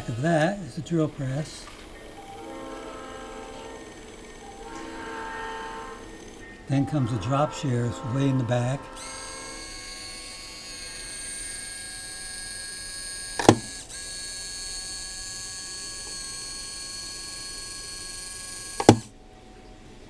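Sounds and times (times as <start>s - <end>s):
electric motor whine: 0.0s - 19.2s
sharp click: 13.3s - 13.8s, 18.8s - 19.1s.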